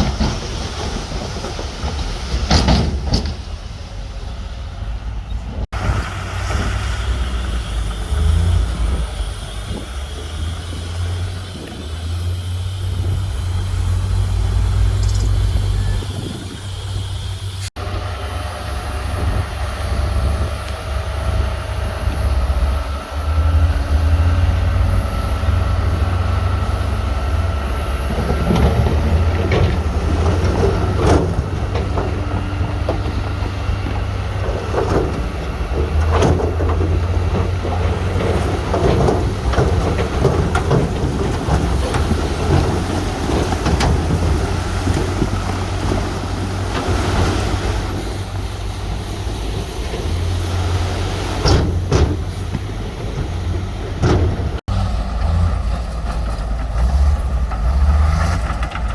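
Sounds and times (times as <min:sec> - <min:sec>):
knocks and clanks: 0:00.0 - 0:03.6, 0:28.0 - 0:48.4, 0:49.8 - 0:58.9
diesel engine rumble: 0:00.0 - 0:58.9.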